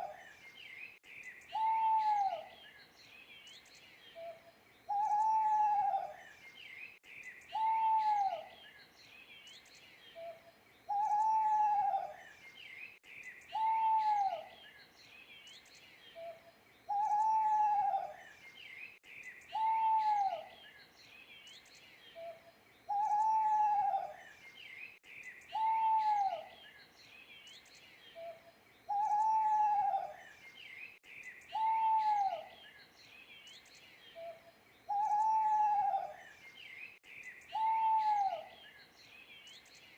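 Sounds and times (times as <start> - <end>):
small birds chirping: 0.0 - 39.9
owl hooting: 1.5 - 2.5, 4.2 - 6.2, 7.5 - 8.5, 10.2 - 12.2, 13.5 - 14.5, 16.2 - 18.2, 19.5 - 20.5, 22.2 - 24.2, 25.5 - 26.5, 28.2 - 30.2, 31.5 - 32.6, 34.2 - 36.2, 37.5 - 38.6.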